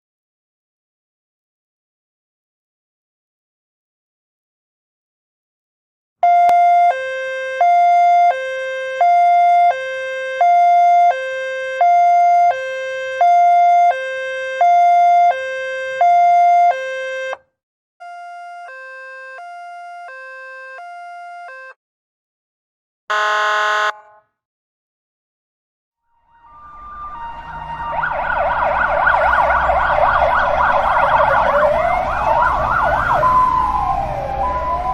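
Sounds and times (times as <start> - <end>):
two-tone ambulance siren: 6.2 - 21.8, 23.1 - 24.2, 26.1 - 34.9
short loud siren blast: 23.1 - 24.2, 26.1 - 34.9.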